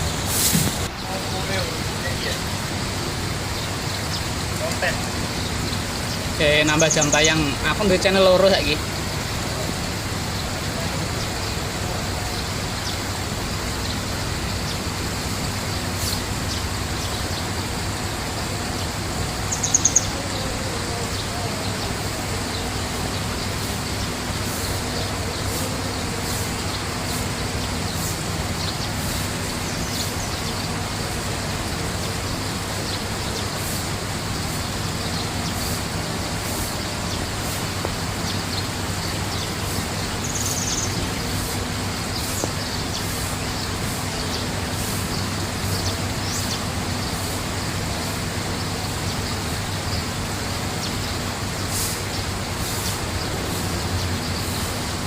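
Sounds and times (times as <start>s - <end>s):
rushing background noise: 0.0s - 55.0s
faint bird chirps: 19.5s - 22.7s.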